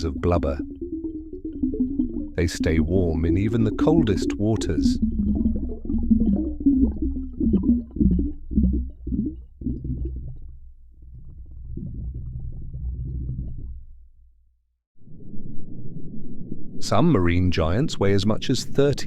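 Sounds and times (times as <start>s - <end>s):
seal low rumbling call: 4.6s - 13.9s.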